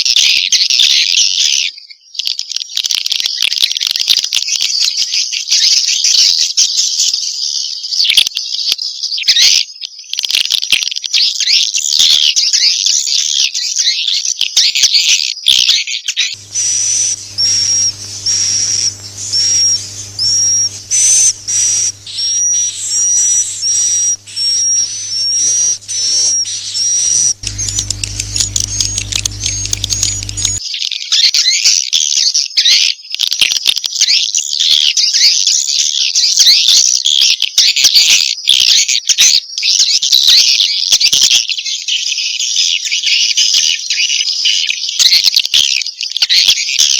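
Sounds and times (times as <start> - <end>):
low steady hum: 16.4 - 30.6
swiftlets twittering chirps: 16.4 - 30.6.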